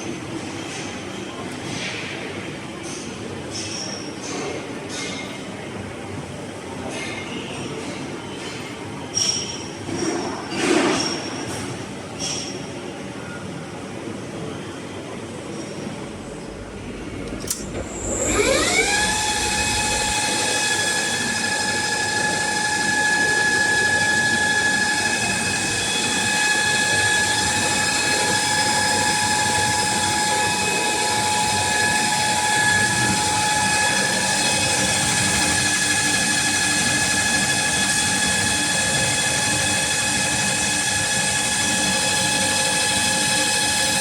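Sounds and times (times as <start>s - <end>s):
lathe whine: 16.1s - 44.0s.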